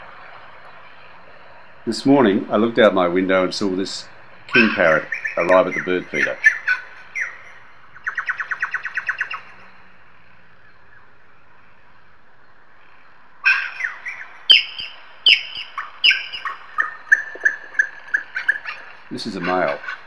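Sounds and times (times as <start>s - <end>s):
sharp falling bird calls: 3.6s - 20.0s
bird chattering trill: 4.5s - 9.6s, 13.4s - 20.0s.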